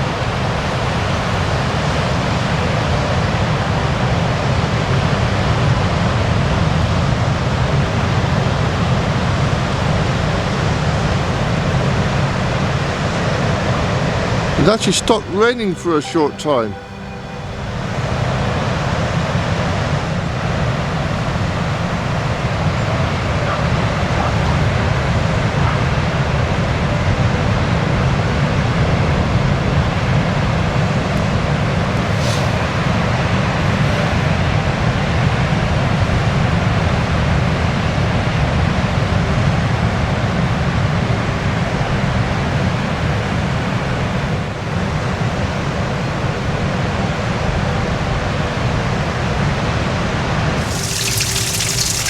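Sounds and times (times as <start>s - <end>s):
sea waves washing on shore: 50.6s - 52.0s.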